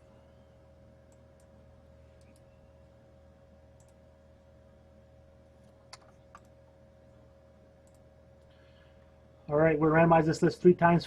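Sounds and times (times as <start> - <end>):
faint hum: 0.0 - 11.0
computer mouse clicks: 2.2 - 2.5, 3.8 - 4.0, 5.6 - 6.6, 7.8 - 8.5.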